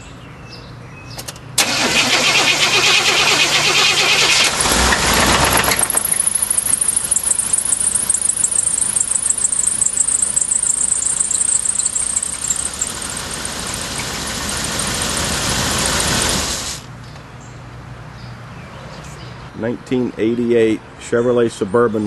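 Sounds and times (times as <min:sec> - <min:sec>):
engine running with rapid knock: 0:01.6 - 0:16.8
high-pitched engine squeal: 0:01.6 - 0:16.8.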